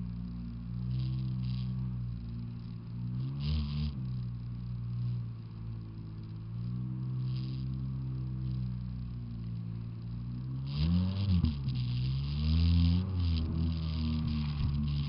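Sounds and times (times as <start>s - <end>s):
jet ski engine running: 12.8s - 15.0s.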